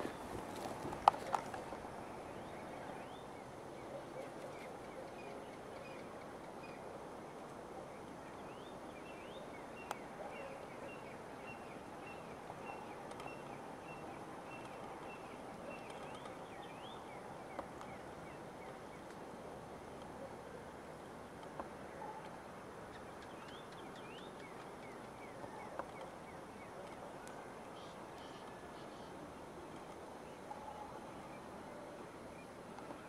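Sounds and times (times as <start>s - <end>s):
steady background hiss: 0.0s - 33.0s
small birds chirping: 22.8s - 30.7s.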